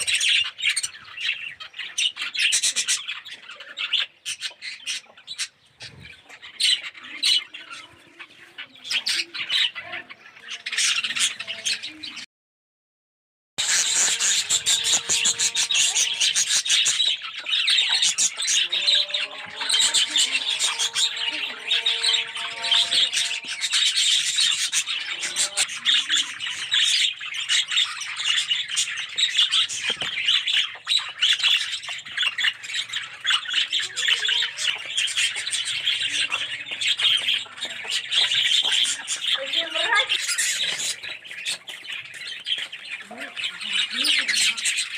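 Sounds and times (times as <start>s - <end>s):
budgerigars chattering and chirping: 0.0s - 12.2s, 13.6s - 44.9s.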